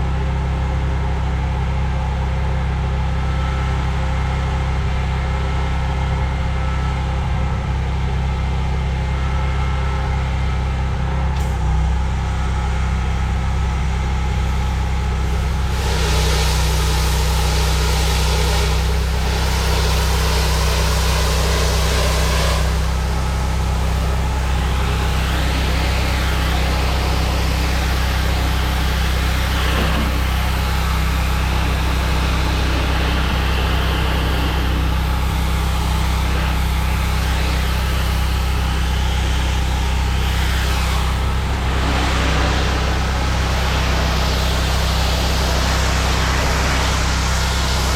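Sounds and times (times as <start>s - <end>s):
pressure washer engine humming: 0.0s - 47.9s
water spray hissing on concrete: 15.2s - 47.9s.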